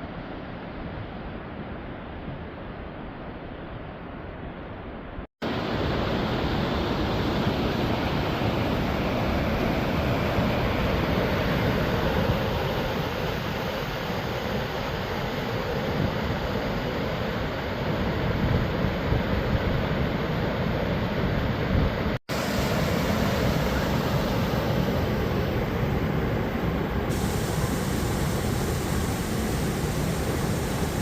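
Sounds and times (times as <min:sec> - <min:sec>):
waterfall rushing: 0:22.3 - 0:25.4, 0:27.1 - 0:31.0.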